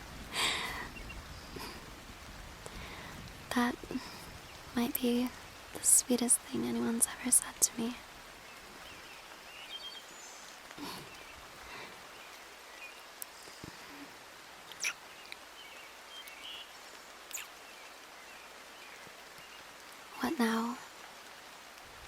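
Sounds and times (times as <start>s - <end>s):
rain hiss: 0.0s - 22.0s
faint bird chirps: 8.4s - 14.1s, 14.7s - 20.7s.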